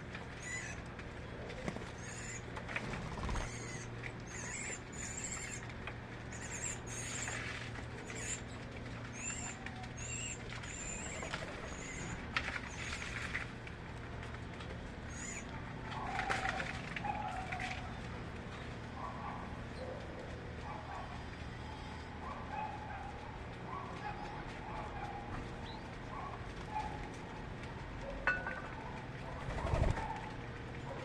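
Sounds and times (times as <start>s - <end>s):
steady low hum: 0.0s - 31.0s
small birds chirping: 1.9s - 2.5s, 3.2s - 5.7s, 6.3s - 13.1s, 15.1s - 15.5s.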